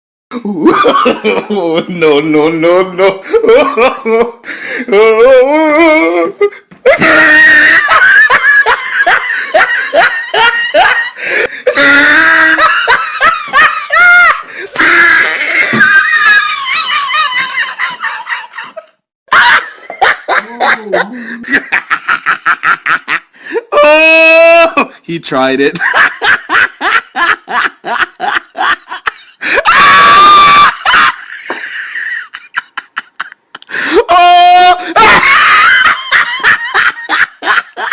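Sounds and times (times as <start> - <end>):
high-pitched comic laughing: 6.9 - 23.2, 25.8 - 37.9
person snickering: 19.6 - 22.8
loud high scream: 29.5 - 31.2.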